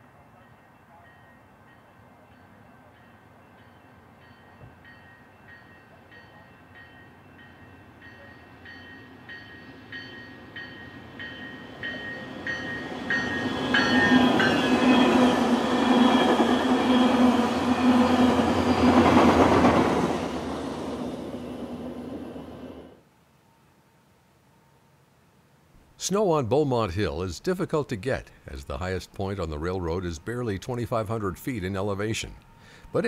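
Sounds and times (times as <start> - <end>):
locomotive bell ringing: 0.0 - 18.9, 28.5 - 33.0
train coaches rumbling on rails: 8.0 - 22.9
locomotive engine hum: 8.2 - 23.0.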